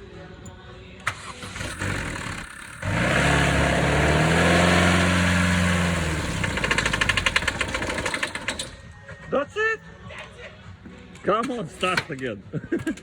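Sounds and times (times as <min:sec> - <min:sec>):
car engine starter cranking: 0:01.0 - 0:08.9
car engine running: 0:01.1 - 0:08.7.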